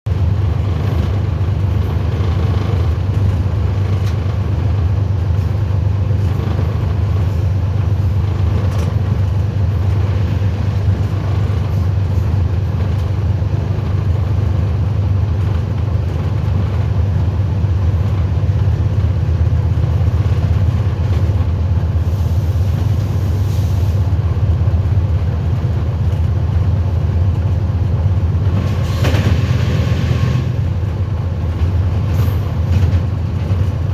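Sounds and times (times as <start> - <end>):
train rumbling: 0.0 - 33.9
train clatter: 0.1 - 33.9.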